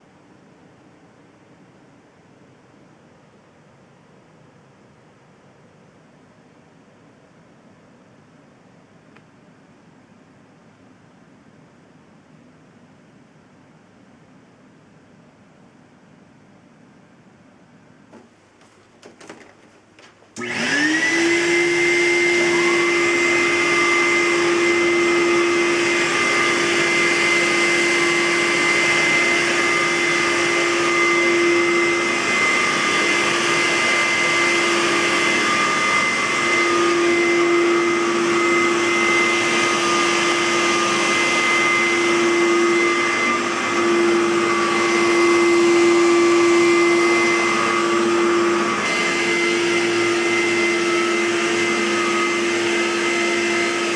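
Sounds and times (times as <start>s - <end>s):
vacuum cleaner motor whining: 18.1s - 53.9s.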